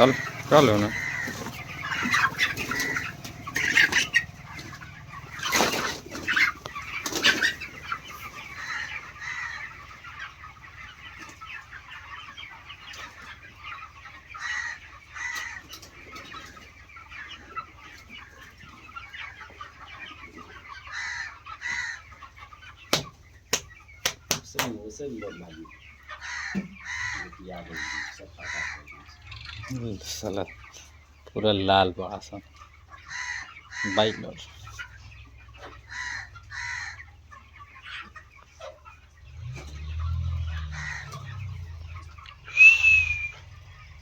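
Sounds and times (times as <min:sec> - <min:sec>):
chickens clucking: 0:00.0 - 0:44.0.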